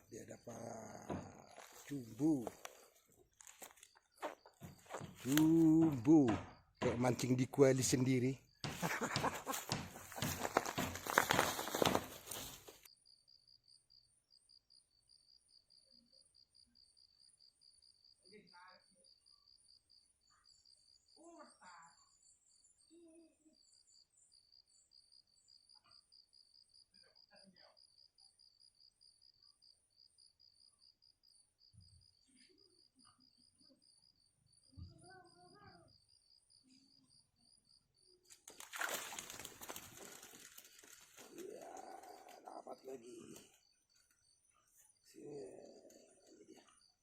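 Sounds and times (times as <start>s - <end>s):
insect chirping: 0.0s - 47.0s
rustling and knocking burst: 8.7s - 12.9s.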